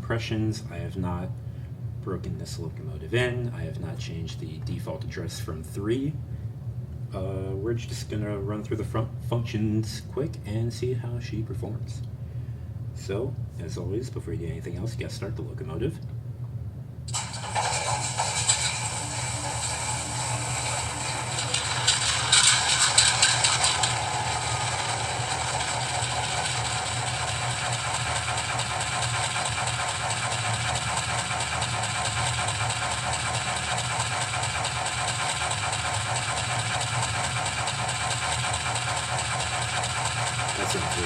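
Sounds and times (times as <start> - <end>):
model locomotive diesel engine: 17.1 - 41.0.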